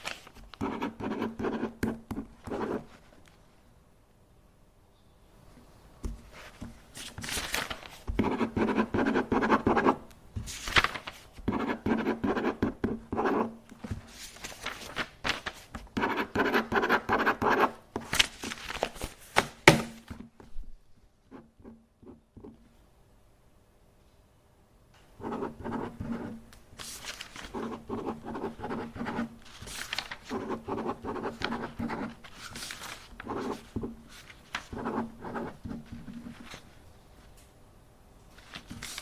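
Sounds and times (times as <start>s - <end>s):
paper rustling and scraping: 0.0s - 0.7s, 6.1s - 8.4s, 10.4s - 11.5s, 13.8s - 15.9s, 18.0s - 20.2s, 26.8s - 36.8s, 38.3s - 39.0s.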